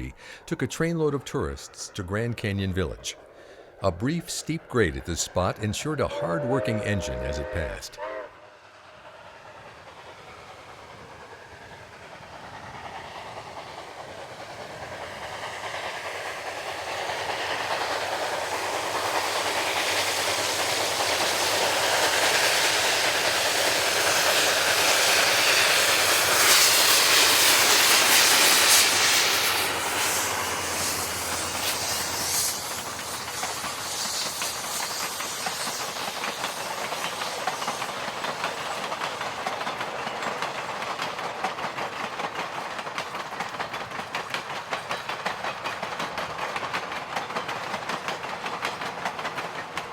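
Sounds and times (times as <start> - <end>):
steam locomotive hissing: 0.0 - 49.9
train cars clattering on rails: 10.1 - 49.9.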